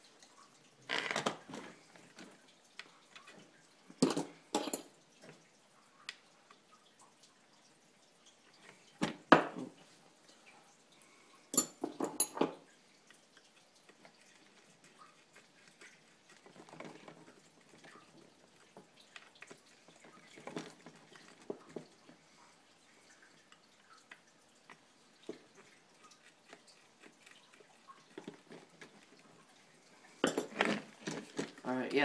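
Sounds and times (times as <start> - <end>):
faint rattling and rustling: 25.2 - 32.0.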